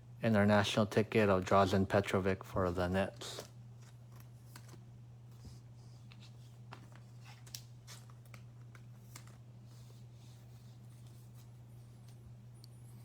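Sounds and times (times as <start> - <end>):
low electrical hum: 0.0 - 13.0
cards and packaging rustling: 3.1 - 4.9, 5.6 - 11.5.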